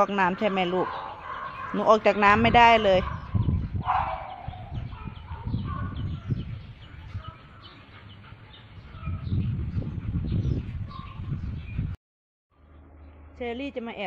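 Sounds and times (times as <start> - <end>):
birds chirping and clucking: 0.0 - 11.9.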